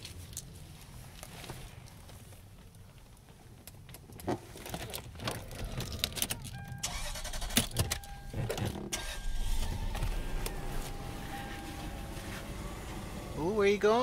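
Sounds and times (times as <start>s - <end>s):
car keys jangling: 4.6s - 13.2s
car engine starting and idling: 5.3s - 14.0s
electronic chime tone: 9.3s - 13.4s.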